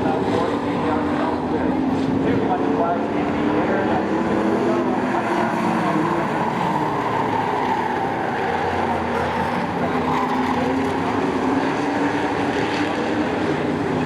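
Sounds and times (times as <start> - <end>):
race truck engines droning: 0.0 - 14.0.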